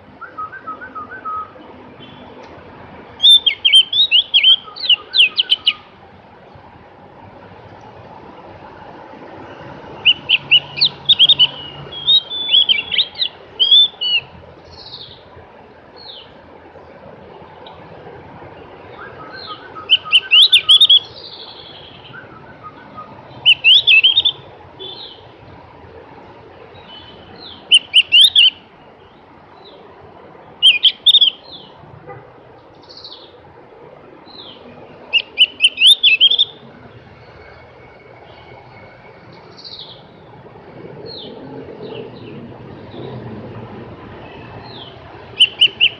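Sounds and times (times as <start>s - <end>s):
bird chirping: 3.1s - 5.9s, 9.9s - 15.2s, 18.8s - 25.3s, 26.7s - 31.8s, 32.7s - 33.4s, 34.2s - 40.4s, 44.1s - 45.9s
soft slurred bird notes: 19.1s - 25.2s, 44.5s - 45.9s.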